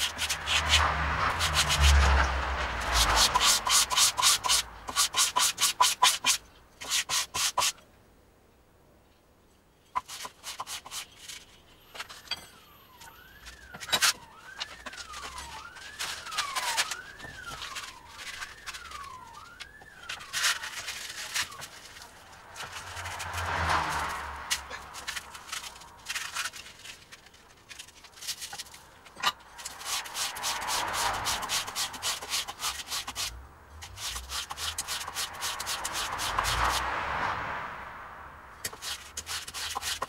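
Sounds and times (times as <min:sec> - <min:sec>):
hand-sanding steel blade: 0:00.0 - 0:02.2, 0:02.8 - 0:07.8, 0:10.0 - 0:11.4, 0:29.6 - 0:36.8, 0:38.6 - 0:40.0
siren wailing: 0:00.4 - 0:04.8, 0:12.0 - 0:26.6, 0:29.5 - 0:32.3.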